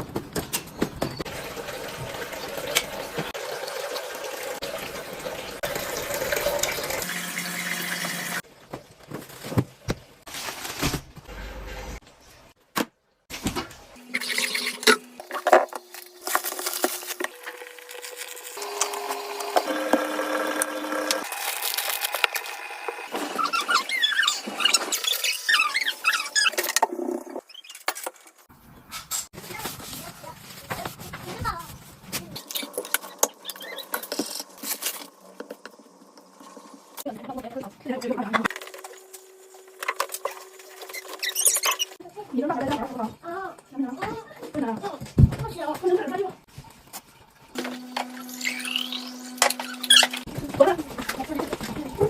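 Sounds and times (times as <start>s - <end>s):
fish tank water trickling: 1.2s - 8.4s.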